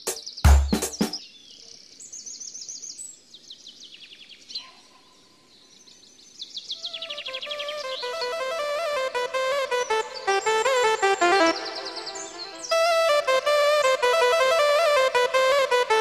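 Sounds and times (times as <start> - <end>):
music with stepping melody: 0.0 - 1.2, 8.0 - 16.0
small birds chirping trills: 0.0 - 15.8.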